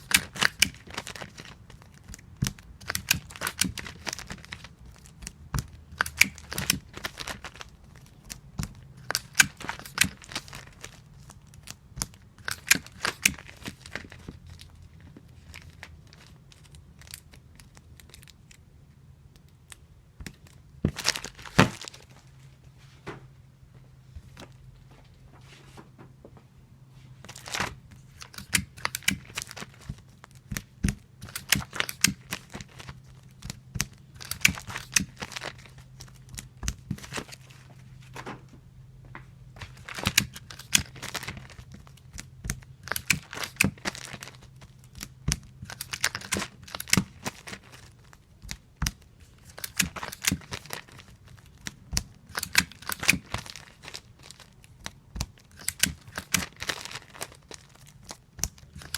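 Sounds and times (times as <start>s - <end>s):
plastic crinkling: 0.0s - 18.6s, 27.2s - 38.5s, 39.5s - 58.9s.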